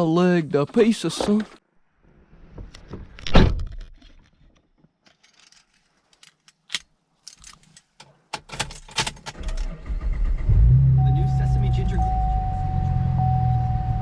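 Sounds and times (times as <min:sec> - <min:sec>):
light clicks and rattles: 0:02.7 - 0:09.6.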